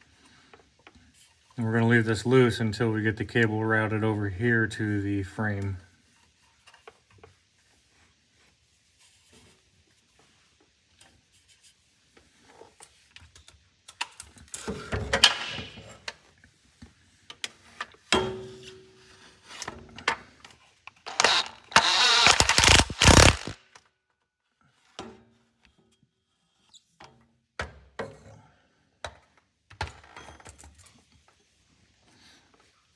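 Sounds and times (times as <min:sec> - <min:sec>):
tool and cable clicks: 0:20.9 - 0:23.8
impact driver whining and rattling: 0:21.1 - 0:23.8.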